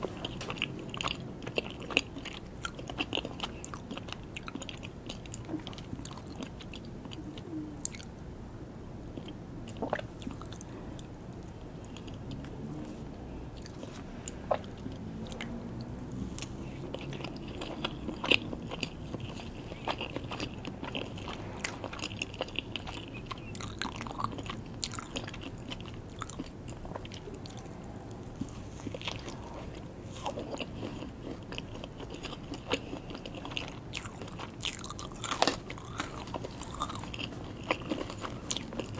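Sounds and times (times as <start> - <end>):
person chewing cake: 0.0 - 8.2, 9.0 - 38.9
wet mouth sounds: 9.2 - 11.1, 11.8 - 31.6.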